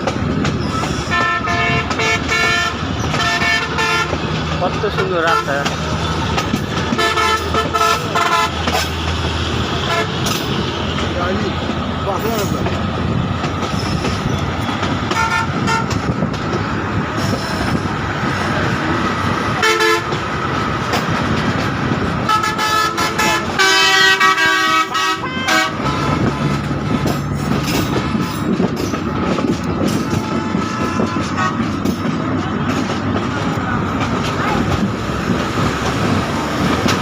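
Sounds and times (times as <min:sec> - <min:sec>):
moving train running: 0:00.0 - 0:37.0
loud train horn blast: 0:01.1 - 0:04.2, 0:06.9 - 0:09.0, 0:09.7 - 0:10.5, 0:15.1 - 0:16.1, 0:19.6 - 0:20.2, 0:22.2 - 0:26.7, 0:30.0 - 0:31.8
train horn toots: 0:01.1 - 0:04.2, 0:06.9 - 0:09.0, 0:09.8 - 0:10.5, 0:15.1 - 0:16.1, 0:19.6 - 0:20.2, 0:22.2 - 0:26.7, 0:30.0 - 0:31.8.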